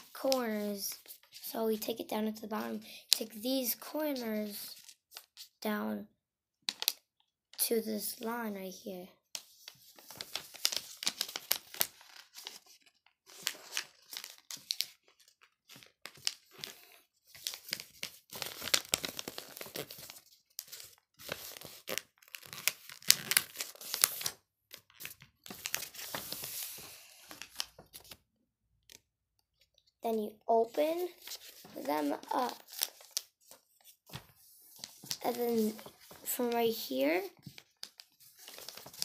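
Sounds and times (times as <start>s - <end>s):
paper folding and crinkling: 0.0s - 1.6s, 9.4s - 28.2s, 30.5s - 39.0s.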